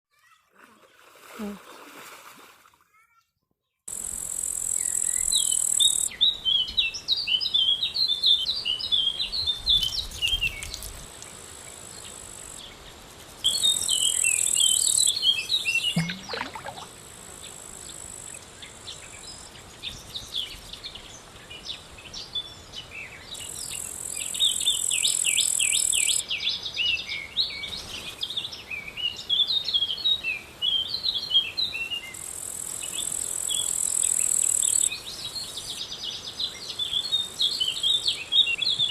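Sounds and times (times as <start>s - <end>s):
insect buzz: 3.9s - 6.2s, 9.3s - 20.8s, 23.4s - 26.2s, 32.1s - 38.2s
small birds chirping: 4.4s - 11.4s, 19.0s - 32.2s.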